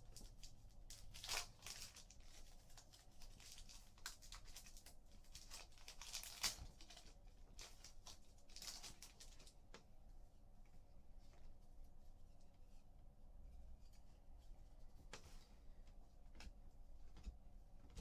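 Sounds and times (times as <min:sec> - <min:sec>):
wrapper crinkling: 0:00.1 - 0:09.6.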